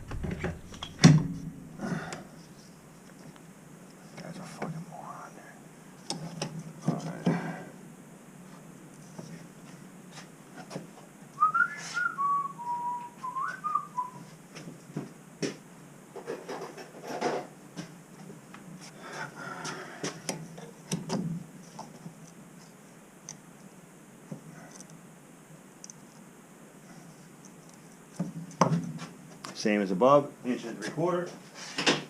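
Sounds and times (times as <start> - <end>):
person whistling: 11.4 - 14.2.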